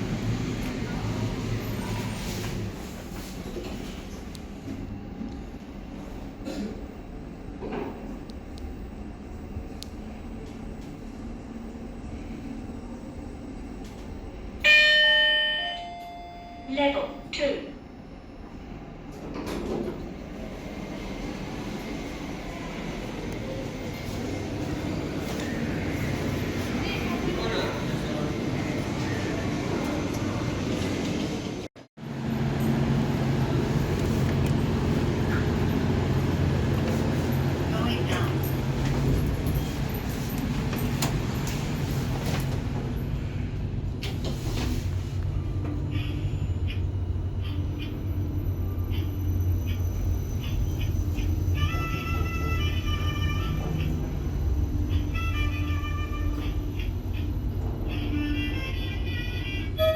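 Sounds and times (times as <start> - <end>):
lift car low hum: 0.0 - 59.9
lift arrival chime: 14.6 - 17.4.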